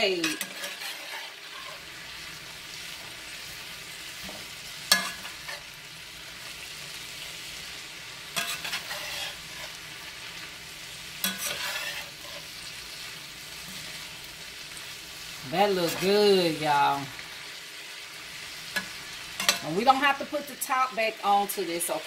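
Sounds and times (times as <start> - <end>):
metal spoon scraping a pan: 0.0 - 2.2, 4.2 - 5.8, 8.3 - 10.5, 11.2 - 13.0, 18.6 - 20.0
vegetables sizzling in a skillet: 0.0 - 22.0.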